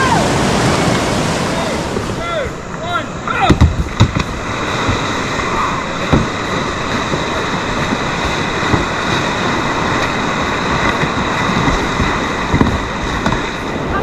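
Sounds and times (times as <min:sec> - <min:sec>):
high-pitched drone: 0:00.0 - 0:14.0
whitewater rapids rushing: 0:00.0 - 0:14.0.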